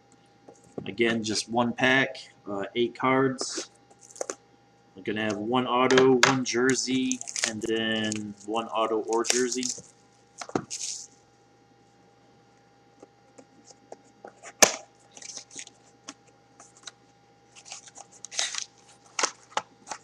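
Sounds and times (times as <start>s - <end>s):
cardboard and wrapper crinkling: 6.7s - 11.1s, 15.1s - 15.8s, 17.5s - 20.0s
sharp cardboard snap: 14.6s - 14.8s.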